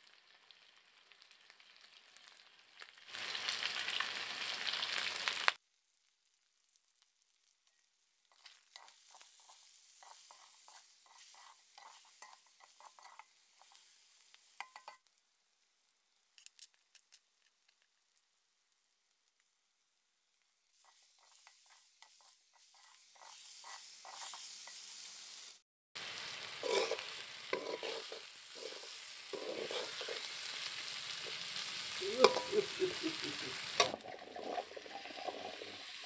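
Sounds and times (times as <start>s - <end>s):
food sizzling in oil: 0.0s - 36.0s
spoon scraping in a pan: 8.3s - 15.1s, 20.8s - 25.3s, 26.4s - 33.0s.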